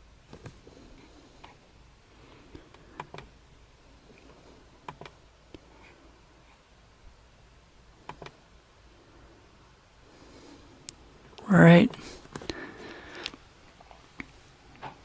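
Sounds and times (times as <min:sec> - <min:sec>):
faint steady hum: 0:00.0 - 0:15.0
soft sharp clicks: 0:04.2 - 0:05.7, 0:08.0 - 0:08.4, 0:10.8 - 0:11.0.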